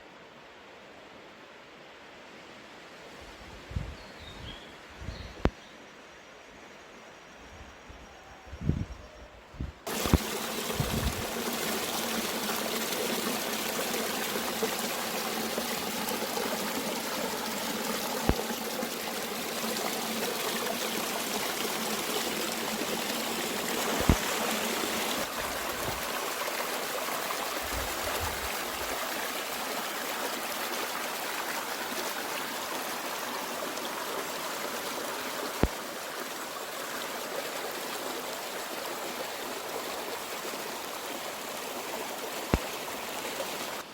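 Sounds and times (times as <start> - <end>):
stream flowing and trickling: 9.8 - 43.9.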